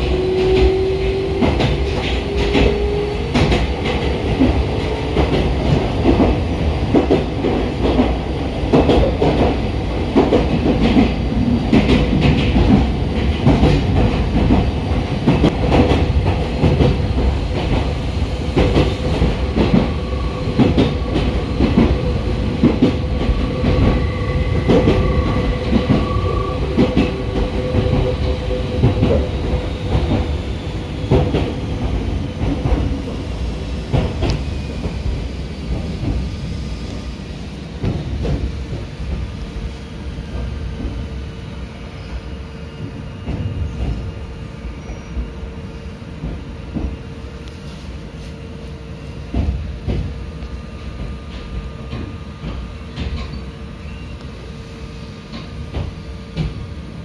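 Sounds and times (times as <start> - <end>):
train wheels clattering over rail joints: 0.1 - 30.3.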